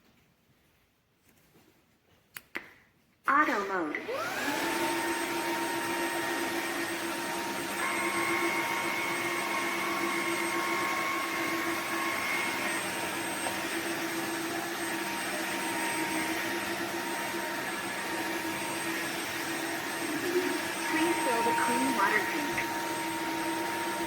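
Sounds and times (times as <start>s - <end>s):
floor vacuum motor whining: 3.9s - 24.0s
higher tone: 20.1s - 23.4s.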